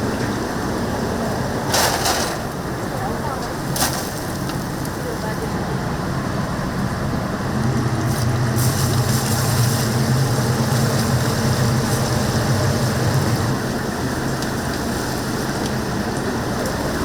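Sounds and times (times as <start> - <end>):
steady low hum: 5.8 - 14.0
oil sizzling while deep-frying: 7.0 - 17.0.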